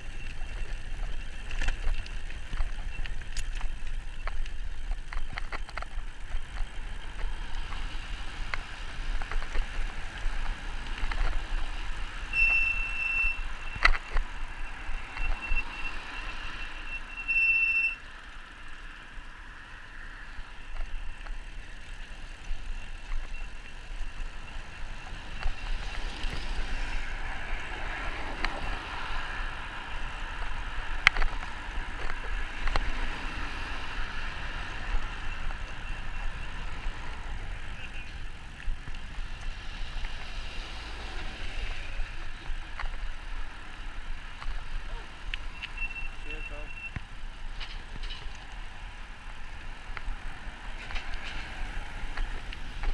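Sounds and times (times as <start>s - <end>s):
bike rolling noise: 0.0s - 52.9s
high steady squeal: 11.3s - 27.8s, 44.8s - 47.0s.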